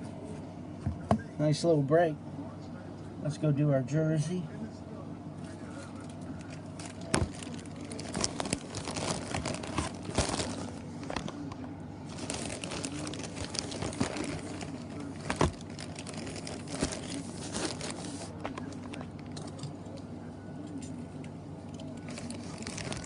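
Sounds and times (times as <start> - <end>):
packaging wrapper crinkling and tearing: 6.0 - 11.4, 12.1 - 19.4, 22.0 - 23.0.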